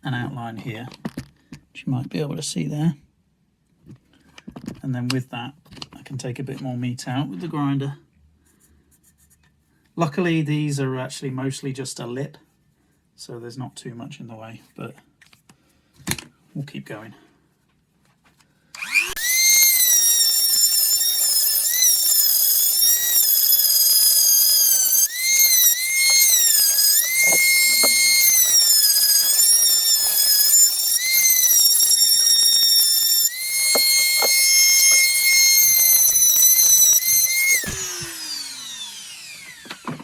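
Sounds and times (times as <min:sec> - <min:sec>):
rotary tool grinding metal: 0:18.8 - 0:40.0.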